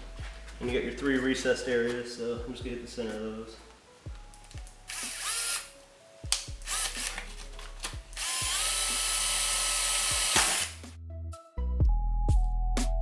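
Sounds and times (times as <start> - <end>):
power drill drilling: 4.9 - 5.8, 6.6 - 7.4, 8.1 - 10.8.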